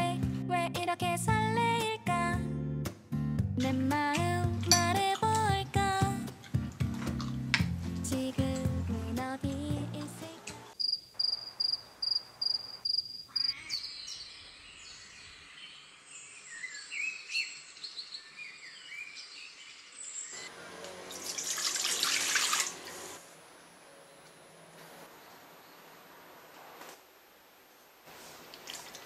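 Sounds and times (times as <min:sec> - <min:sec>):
small birds chirping: 0:12.0 - 0:20.5.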